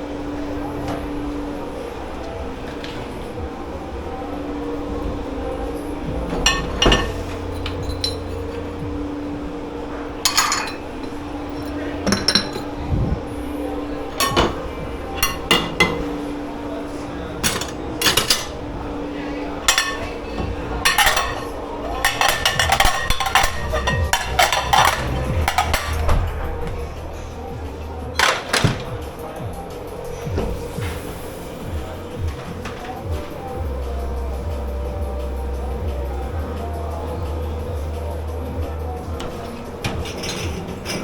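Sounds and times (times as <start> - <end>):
machine hum: 0.0 - 39.7
dishes and cutlery clattering: 6.3 - 8.8, 10.2 - 12.8, 13.7 - 26.9, 28.1 - 29.0, 39.1 - 41.0.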